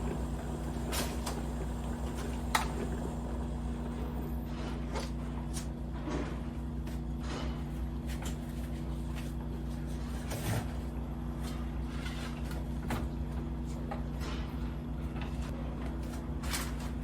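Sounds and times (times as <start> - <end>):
steady low hum: 0.0 - 5.6.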